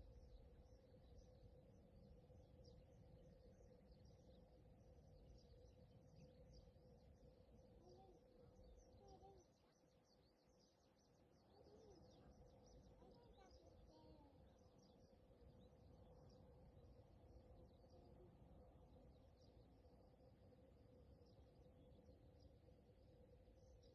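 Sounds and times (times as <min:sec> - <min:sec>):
faint steady hum: 0:00.0 - 0:23.9
small birds chirping: 0:00.0 - 0:23.9
lower bird calls: 0:07.7 - 0:15.1.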